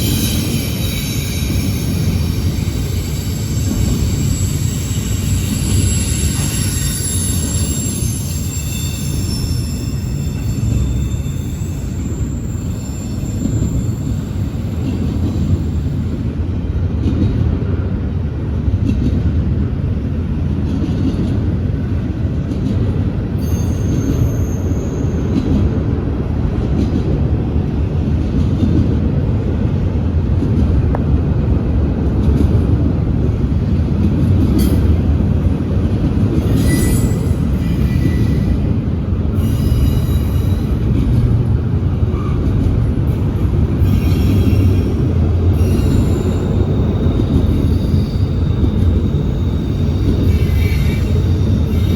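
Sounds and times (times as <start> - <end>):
high-pitched wheel squeals: 0.0 - 16.0, 23.4 - 25.5, 36.4 - 41.3, 43.8 - 51.9
train wheels rumbling on rails: 0.0 - 51.9.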